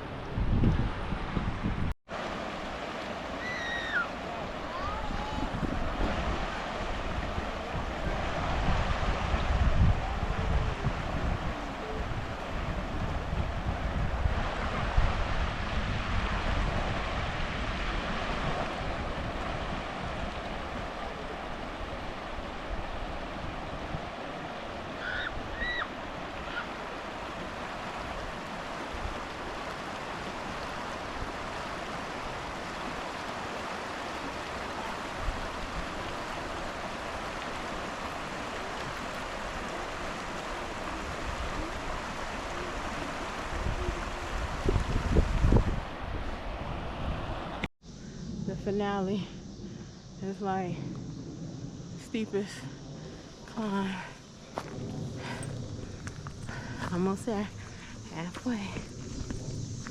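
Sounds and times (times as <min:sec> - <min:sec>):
wind buffeting microphone: 0:00.0 - 0:59.9
river water flowing over rocks: 0:02.1 - 0:47.7.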